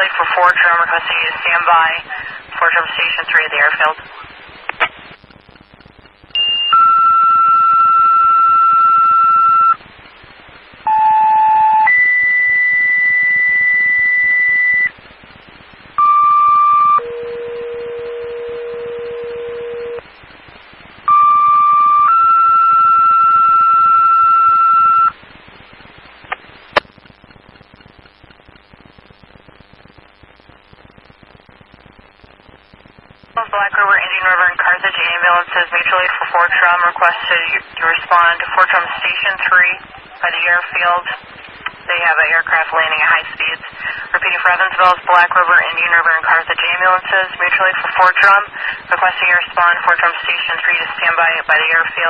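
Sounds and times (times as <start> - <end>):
radio click: 0.0 - 6.2
faint static hiss: 0.0 - 52.0
two-tone radio paging tones: 5.8 - 9.8, 10.8 - 15.0, 15.9 - 20.1, 21.0 - 25.2.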